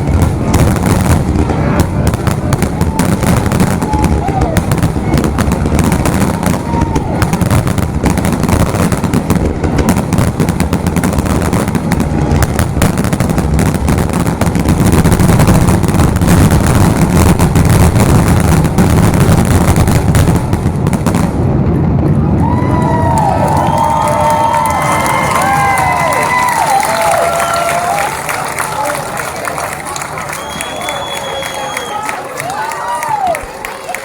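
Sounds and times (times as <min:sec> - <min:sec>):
crowd cheering and whistling: 0:00.0 - 0:09.9, 0:22.1 - 0:34.0
fireworks booming and crackling: 0:00.0 - 0:33.6.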